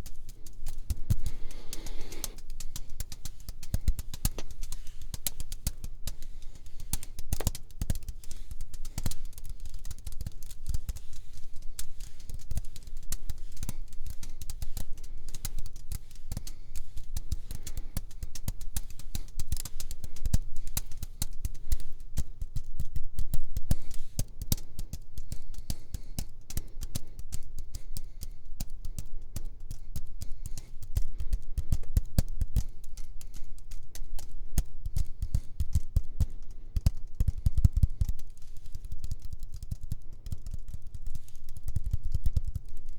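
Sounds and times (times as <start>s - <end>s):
fast tapping and clicks: 0.0s - 42.9s.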